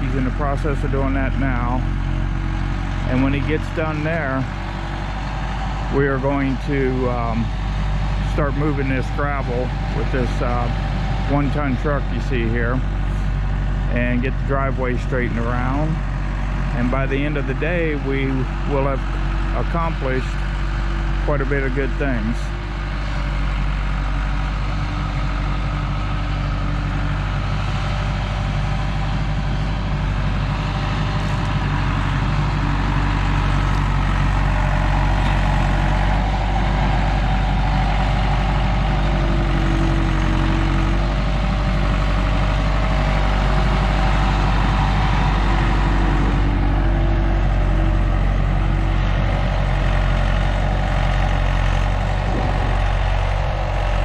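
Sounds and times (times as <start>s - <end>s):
heavy engine humming: 0.0s - 54.0s.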